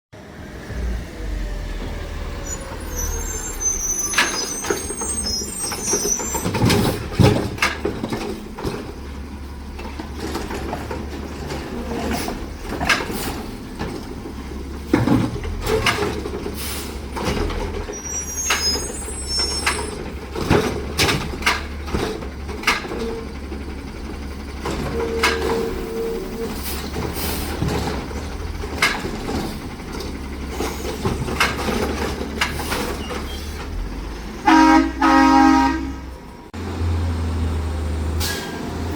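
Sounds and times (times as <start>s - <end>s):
diesel engine running: 0.2s - 38.9s
high squeals: 0.8s - 6.7s, 17.9s - 20.0s
air brakes hissing: 2.2s - 7.1s, 16.5s - 17.2s, 17.9s - 20.0s, 25.2s - 27.6s, 38.2s - 38.8s.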